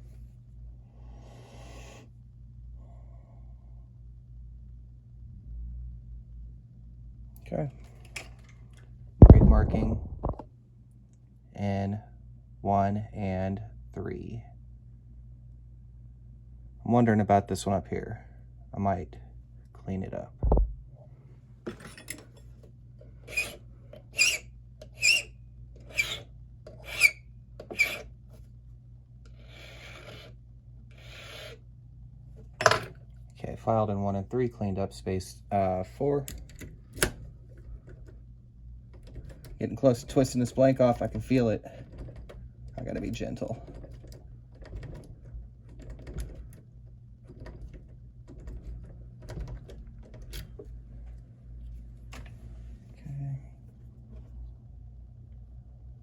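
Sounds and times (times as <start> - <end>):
low steady hum: 0.0 - 56.0
hand file rasping on key: 23.3 - 26.2, 26.8 - 28.0, 29.3 - 31.6.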